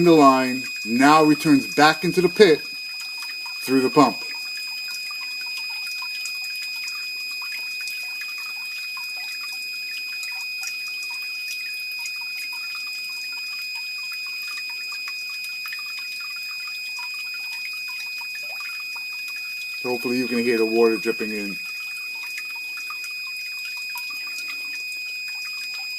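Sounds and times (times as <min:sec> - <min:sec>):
steady high-pitched tone: 0:00.0 - 0:09.6, 0:16.2 - 0:25.9
water dripping and trickling: 0:00.0 - 0:25.9.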